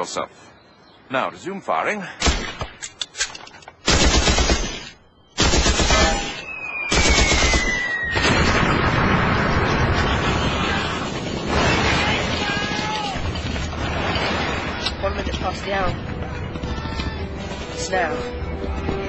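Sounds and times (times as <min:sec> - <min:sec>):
machine-gun bursts: 0:05.4 - 0:06.3
falling whistle: 0:06.3 - 0:08.3.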